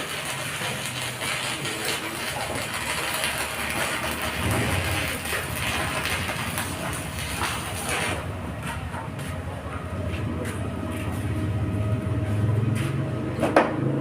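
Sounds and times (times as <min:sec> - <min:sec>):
welding arc crackling hiss: 0:00.0 - 0:09.4.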